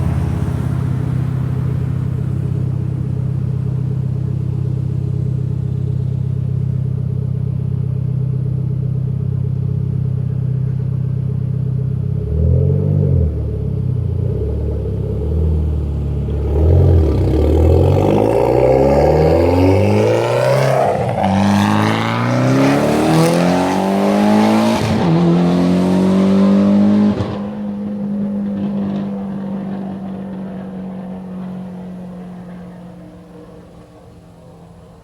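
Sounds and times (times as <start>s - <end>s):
car engine revving hard: 12.2s - 33.0s.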